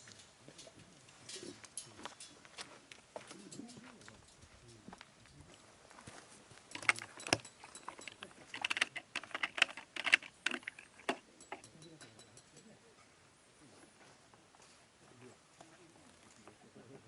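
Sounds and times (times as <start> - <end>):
small hard objects clinking: 6.6 - 12.7.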